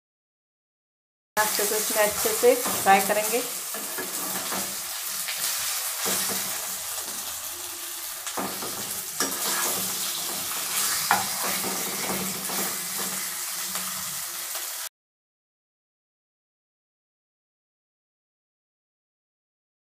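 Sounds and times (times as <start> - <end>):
oil sizzling in a pan: 1.4 - 14.9
metal spatula scraping and tapping pan: 2.0 - 7.3, 8.2 - 14.0.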